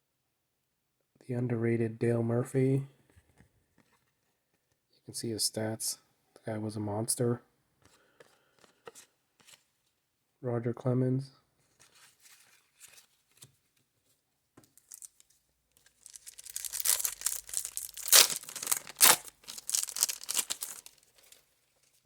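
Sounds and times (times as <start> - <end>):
wrapper crinkling: 14.7 - 22.0
wrapper ripping: 14.8 - 15.2, 15.8 - 21.4.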